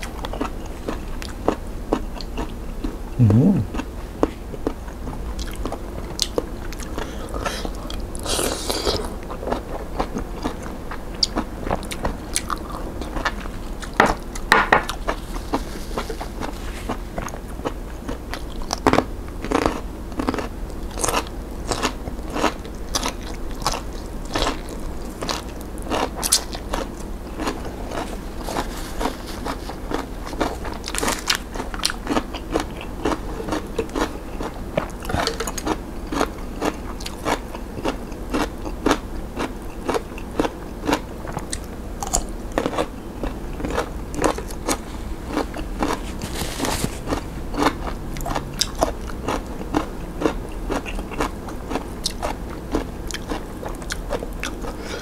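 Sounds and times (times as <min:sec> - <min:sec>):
crunching and chewing vegetables: 0:00.0 - 0:55.0.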